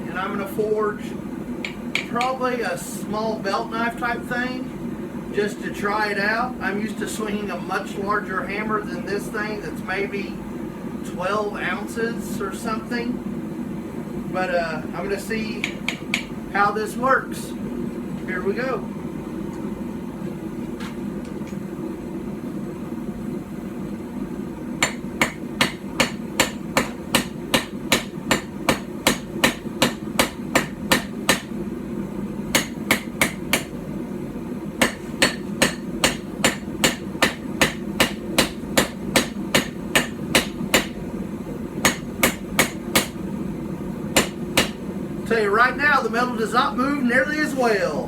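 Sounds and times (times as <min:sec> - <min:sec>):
steady low hum: 0:00.0 - 0:48.0
hammer ringing on steel anvil: 0:24.8 - 0:31.5, 0:34.8 - 0:41.0.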